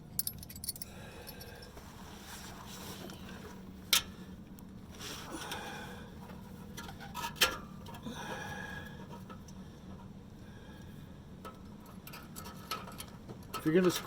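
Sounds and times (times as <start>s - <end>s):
metallic clicks of hand tools: 0.1s - 1.6s.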